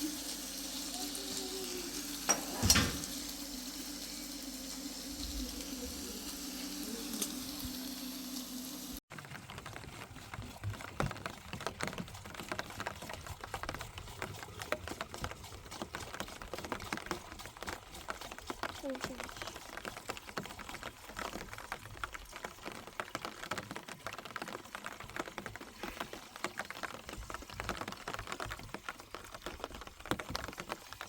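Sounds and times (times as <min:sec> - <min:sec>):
food sizzling in a pan: 0:00.0 - 0:09.0.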